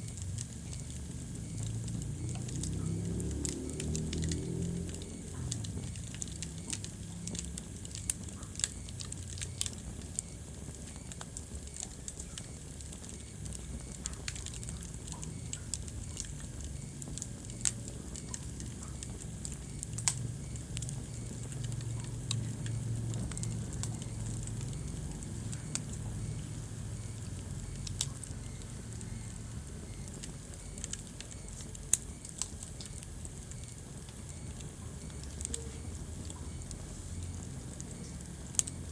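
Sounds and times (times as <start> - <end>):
wood fire burning and crackling: 0.0 - 38.9.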